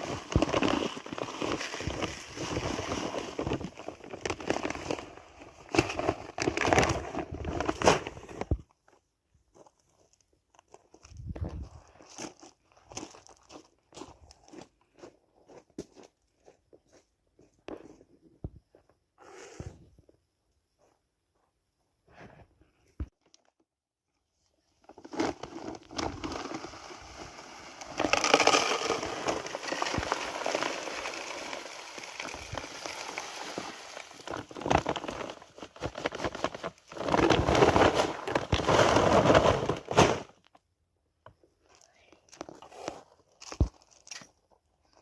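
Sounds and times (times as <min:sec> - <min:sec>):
dry plant material crackling: 0:25.8 - 0:38.3.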